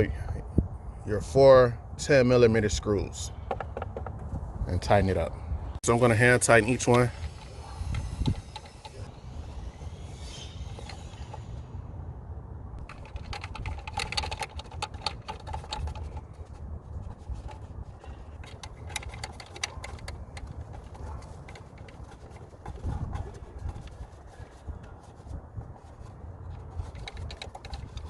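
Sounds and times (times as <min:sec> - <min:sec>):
steady low rumble: 0:04.1 - 0:28.0
screws being threaded by hand: 0:06.4 - 0:09.1, 0:10.0 - 0:11.5, 0:12.8 - 0:28.0.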